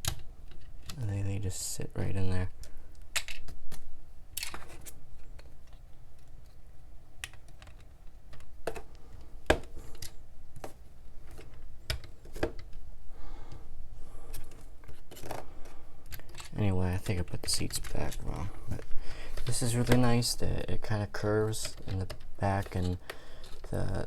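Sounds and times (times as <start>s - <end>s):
plastic bricks clicking: 2.6s - 6.6s, 7.2s - 12.8s.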